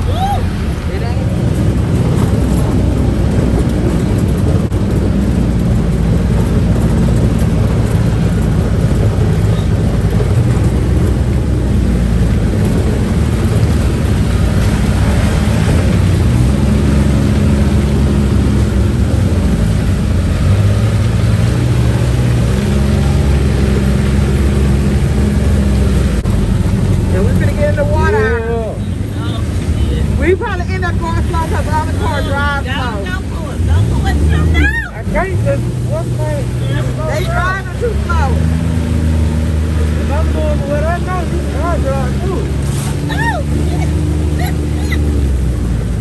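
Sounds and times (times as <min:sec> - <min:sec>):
utility vehicle engine running: 0:00.0 - 0:46.0.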